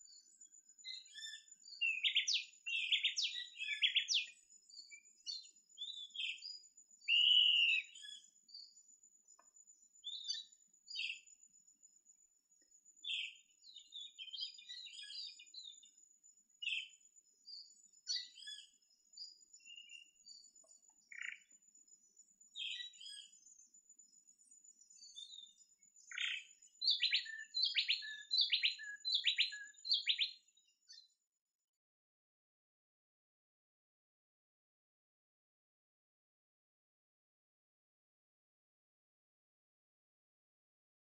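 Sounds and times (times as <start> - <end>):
birds chirping and calling: 0.9 - 4.4, 7.1 - 8.2, 21.1 - 21.4, 26.1 - 30.4.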